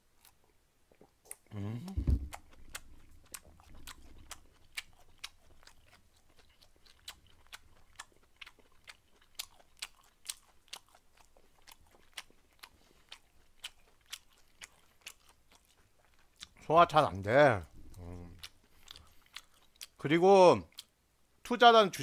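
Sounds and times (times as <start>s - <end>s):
chewing mouth clicks and smacks: 2.2s - 16.6s, 17.8s - 20.0s.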